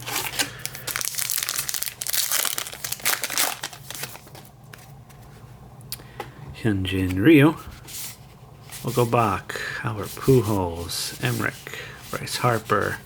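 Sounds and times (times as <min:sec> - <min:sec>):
wrapper tearing and crinkling: 0:00.0 - 0:04.5.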